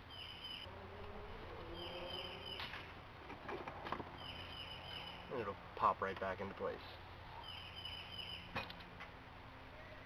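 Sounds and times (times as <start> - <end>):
high chirping bird call: 0.0 - 0.7, 1.6 - 2.9, 4.2 - 5.4, 7.4 - 8.6
lower wavering bird call: 0.0 - 2.9, 7.4 - 8.5.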